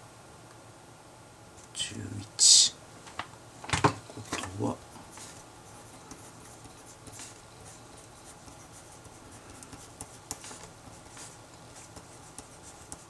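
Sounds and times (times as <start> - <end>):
pen scratching on paper: 5.2 - 13.0.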